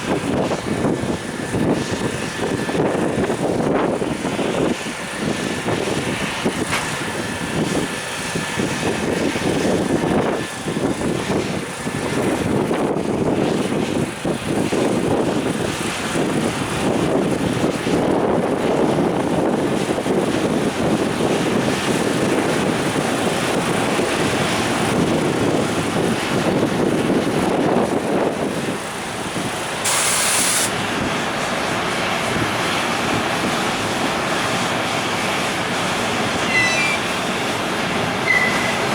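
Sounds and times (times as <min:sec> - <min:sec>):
freight train wheels rumbling: 0:00.0 - 0:38.9
brief high hiss: 0:29.8 - 0:30.8.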